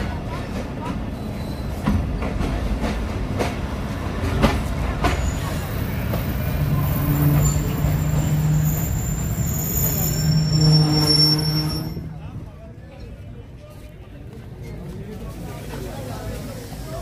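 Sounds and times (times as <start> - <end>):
train low rumble: 0.0 - 17.0
high-pitched squeal: 6.8 - 12.1.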